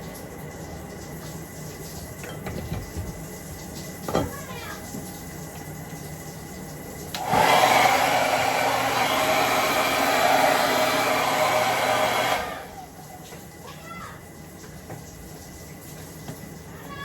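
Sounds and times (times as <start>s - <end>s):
hair dryer running: 7.1s - 13.2s.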